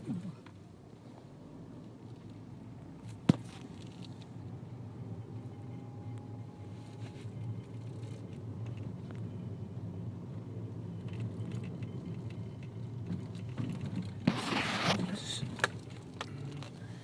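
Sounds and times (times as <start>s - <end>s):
car moving slowly: 0.0s - 17.0s
light clicks and rattles: 11.0s - 14.2s.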